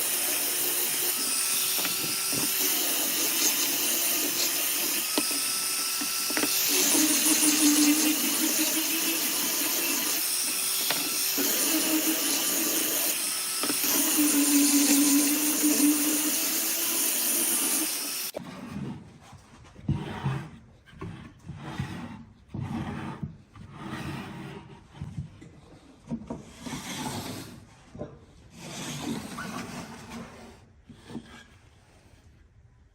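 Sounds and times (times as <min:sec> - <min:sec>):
woodworking power tool cutting: 0:00.0 - 0:18.4.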